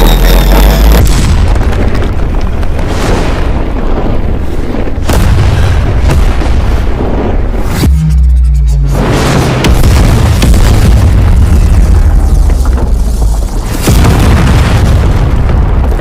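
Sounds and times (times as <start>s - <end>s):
explosion rumble: 0.0s - 16.0s.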